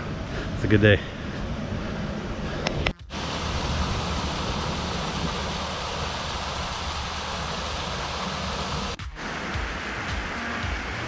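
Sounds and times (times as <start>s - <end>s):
waterfall rushing over rocks: 3.1s - 11.0s.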